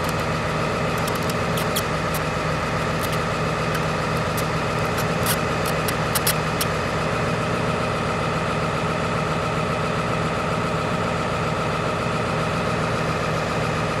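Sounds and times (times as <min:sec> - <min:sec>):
sharp clicks: 0:00.0 - 0:06.8
diesel engine idling: 0:00.0 - 0:14.0.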